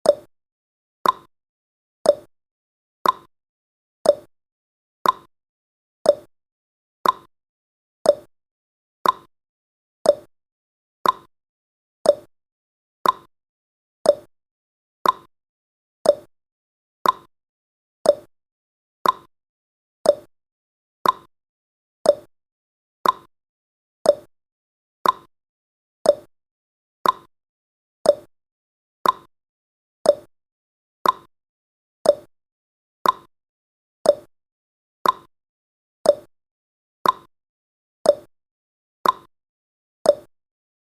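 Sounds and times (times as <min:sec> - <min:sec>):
timer ticking: 0:00.0 - 0:00.3, 0:01.0 - 0:01.3, 0:02.0 - 0:02.3, 0:03.0 - 0:03.3, 0:04.0 - 0:04.3, 0:05.0 - 0:05.3, 0:06.0 - 0:06.3, 0:07.0 - 0:07.3, 0:08.0 - 0:08.3, 0:09.0 - 0:09.3, 0:10.0 - 0:10.3, 0:11.0 - 0:11.3, 0:12.0 - 0:12.3, 0:13.0 - 0:13.3, 0:14.0 - 0:14.3, 0:15.0 - 0:15.3, 0:16.0 - 0:16.3, 0:17.0 - 0:17.3, 0:18.0 - 0:18.3, 0:19.0 - 0:19.3, 0:20.0 - 0:20.3, 0:21.0 - 0:21.3, 0:22.0 - 0:22.3, 0:23.0 - 0:23.3, 0:24.0 - 0:24.3, 0:25.0 - 0:25.3, 0:26.0 - 0:26.3, 0:27.0 - 0:27.3, 0:28.0 - 0:28.3, 0:29.0 - 0:29.3, 0:30.0 - 0:30.3, 0:31.0 - 0:31.3, 0:32.0 - 0:32.3, 0:33.0 - 0:33.3, 0:34.0 - 0:34.3, 0:35.0 - 0:35.3, 0:36.0 - 0:36.3, 0:37.0 - 0:37.3, 0:38.1 - 0:38.3, 0:39.0 - 0:39.3, 0:40.1 - 0:40.3.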